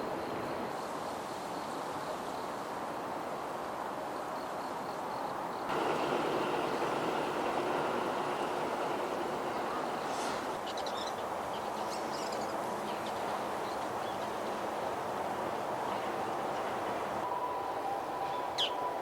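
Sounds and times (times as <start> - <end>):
low background rumble: 5.7 - 10.6.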